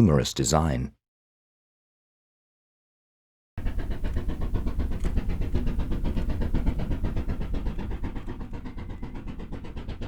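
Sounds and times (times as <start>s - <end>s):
steam locomotive exhaust beats: 3.6s - 10.0s.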